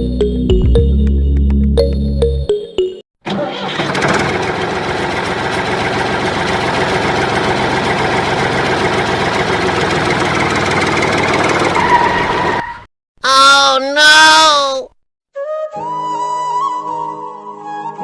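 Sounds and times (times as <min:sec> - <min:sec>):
engine chugging: 0:03.3 - 0:12.6.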